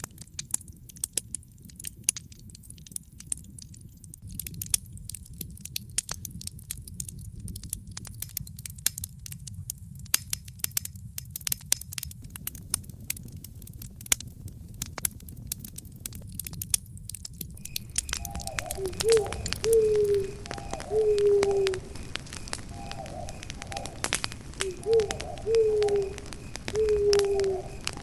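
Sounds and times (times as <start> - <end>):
campfire crackling: 0.0 - 28.0
low steady rumble: 4.2 - 25.5.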